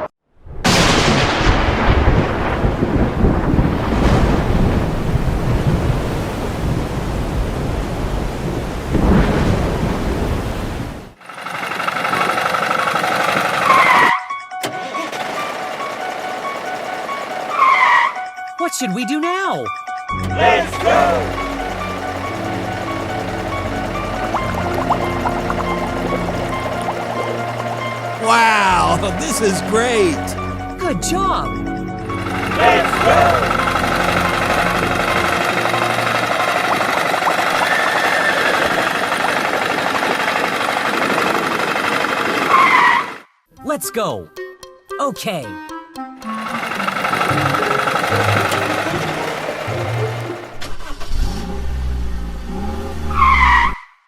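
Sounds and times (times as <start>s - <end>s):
car engine running: 11.2s - 14.1s, 14.7s - 18.2s, 20.3s - 30.7s, 32.0s - 43.1s, 46.2s - 51.0s
low background music: 18.3s - 36.9s.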